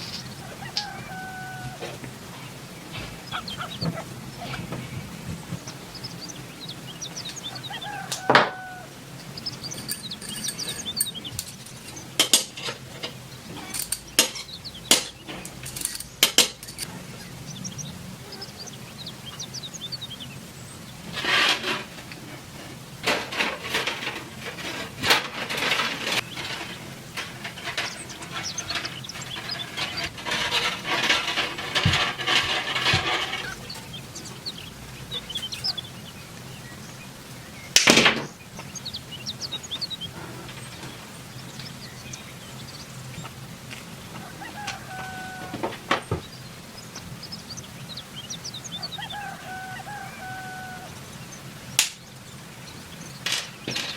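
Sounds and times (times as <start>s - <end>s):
metal scraping: 0.0s - 18.6s, 21.0s - 36.2s
metal parts clinking and knocking: 9.7s - 11.6s, 12.2s - 16.9s.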